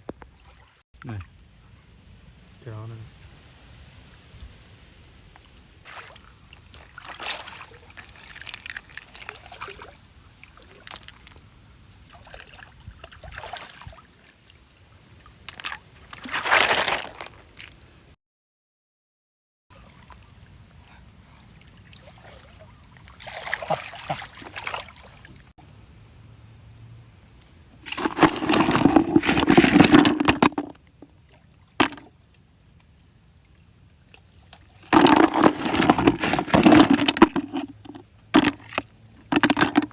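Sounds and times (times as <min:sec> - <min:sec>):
water sloshing and splashing: 0:00.0 - 0:01.6, 0:05.2 - 0:17.8, 0:21.4 - 0:25.5, 0:27.8 - 0:32.3, 0:33.4 - 0:39.9.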